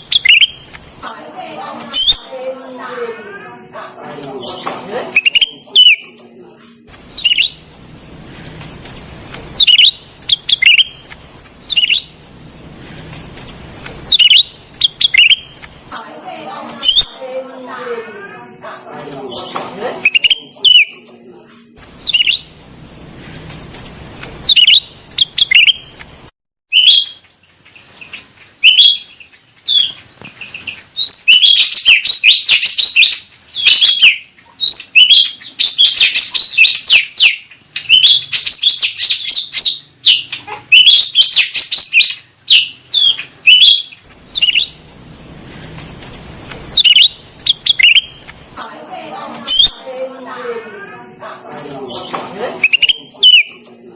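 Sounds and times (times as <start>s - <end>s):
bird chirping and chattering: 0.0s - 0.8s, 4.4s - 6.1s, 7.1s - 15.8s, 16.8s - 17.2s, 19.3s - 21.0s, 22.0s - 22.5s, 24.4s - 26.0s, 26.7s - 44.9s, 46.6s - 48.4s, 51.9s - 53.6s.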